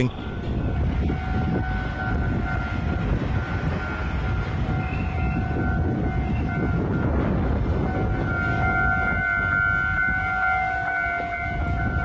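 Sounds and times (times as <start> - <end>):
standing electric train rumble: 0.0 - 12.0.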